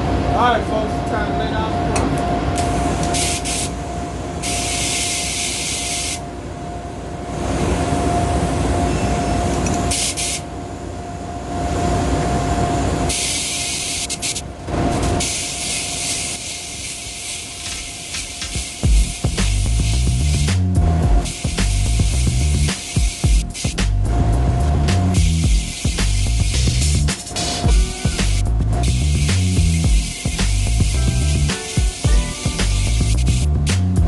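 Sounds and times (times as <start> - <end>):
constant hum: 0.0 - 34.0
spray gun hissing: 3.1 - 3.8, 4.4 - 6.2, 9.9 - 10.4, 13.1 - 14.4, 15.1 - 24.0, 25.0 - 33.7
low rumble: 18.9 - 22.7, 23.4 - 31.5.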